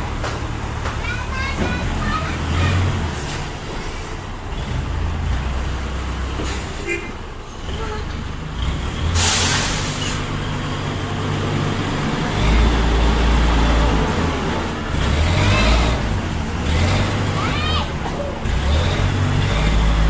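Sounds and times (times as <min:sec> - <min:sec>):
truck engine rumbling: 0:00.0 - 0:20.0
air release hiss: 0:09.2 - 0:10.2.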